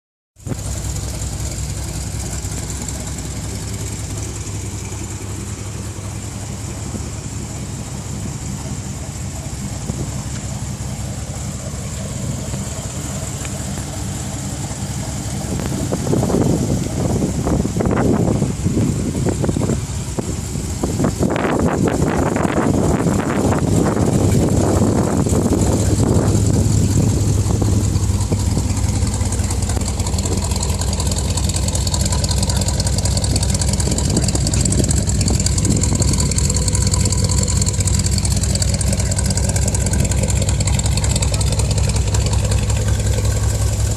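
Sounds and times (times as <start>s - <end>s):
car engine idling rumble: 0.4s - 43.9s.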